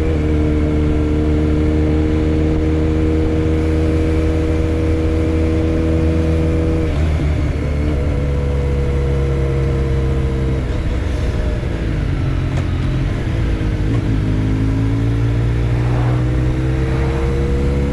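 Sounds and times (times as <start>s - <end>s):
motorcycle engine accelerating: 12.0s - 17.9s.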